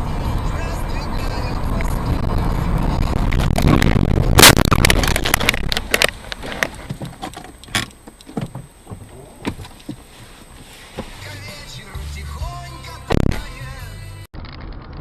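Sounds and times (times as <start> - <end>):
vehicle noise: 0.0 - 15.0
car crash: 2.6 - 6.1
clicks and rattles: 3.2 - 8.6.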